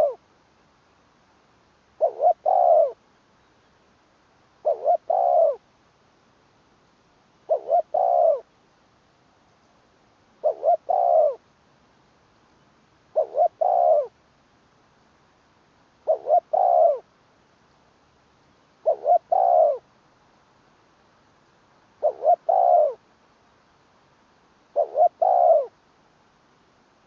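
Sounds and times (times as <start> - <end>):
dove cooing: 0.0 - 0.2, 2.0 - 3.0, 4.6 - 5.6, 7.5 - 8.5, 10.4 - 11.4, 13.1 - 14.2, 16.0 - 17.1, 18.8 - 19.9, 22.0 - 23.0, 24.7 - 25.8.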